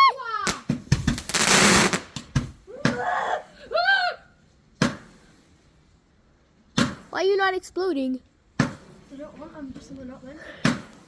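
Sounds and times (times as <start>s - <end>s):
person crying out: 0.0s - 0.5s, 2.7s - 4.3s
firework crack: 0.0s - 3.1s, 4.7s - 5.6s, 6.7s - 7.2s, 8.5s - 9.1s, 10.6s - 11.0s
firework rocket hissing: 0.5s - 2.6s.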